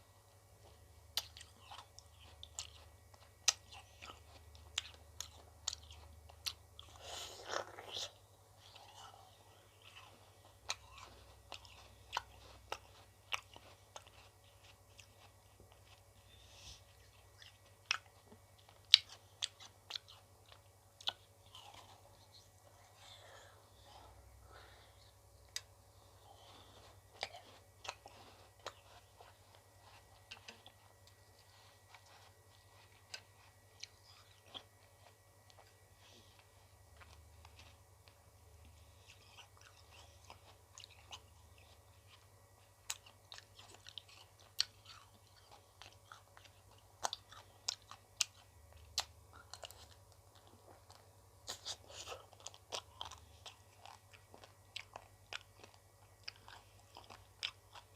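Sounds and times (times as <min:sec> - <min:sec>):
chewing ice cream: 0:00.1 - 0:57.9.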